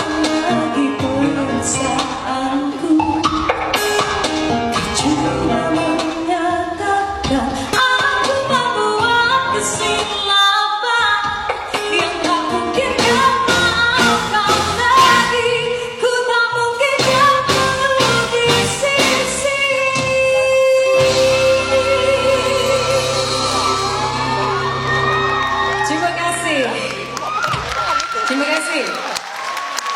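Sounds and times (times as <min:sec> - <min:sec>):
woman singing: 0:00.0 - 0:03.5, 0:04.8 - 0:24.3
band playing pop song: 0:00.0 - 0:15.8, 0:16.7 - 0:27.7.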